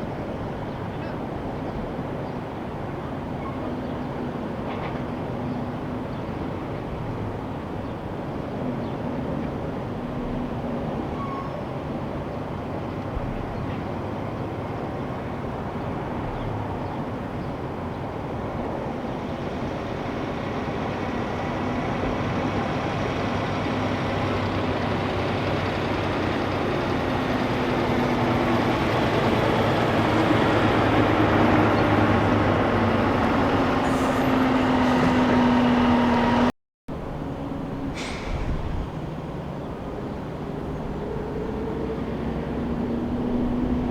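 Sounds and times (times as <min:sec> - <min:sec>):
diesel truck engine drone: 0:11.8 - 0:43.9
road noise: 0:11.8 - 0:43.9.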